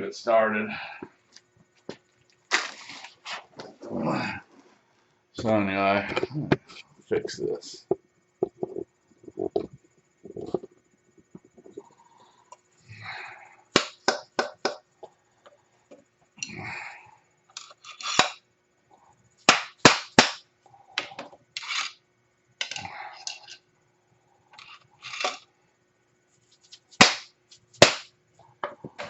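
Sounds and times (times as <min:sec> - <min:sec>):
scraping and handling noise: 0:01.3 - 0:04.8, 0:05.4 - 0:12.6, 0:17.5 - 0:18.4, 0:21.0 - 0:22.0, 0:24.5 - 0:25.5.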